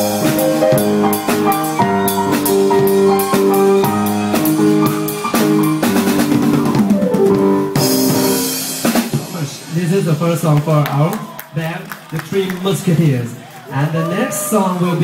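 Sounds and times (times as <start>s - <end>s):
violin melody: 0.0s - 8.6s
keyboard notes: 0.0s - 9.8s
drum kit beat: 0.0s - 11.1s.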